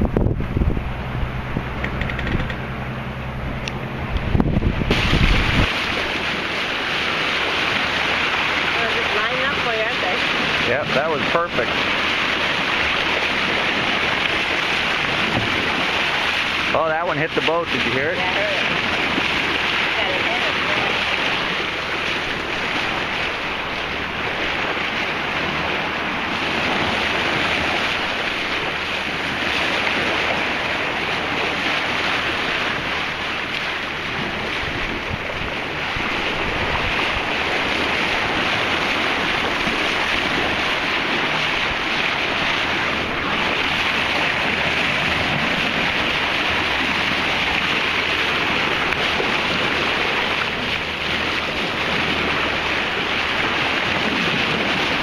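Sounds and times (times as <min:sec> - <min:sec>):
wind buffeting microphone: 0:00.0 - 0:16.7, 0:17.7 - 0:55.0
waves along a boat hull: 0:00.0 - 0:55.0.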